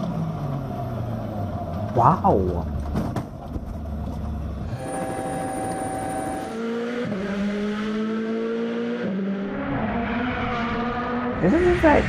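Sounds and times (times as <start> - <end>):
rally car engine revving: 4.6 - 12.0.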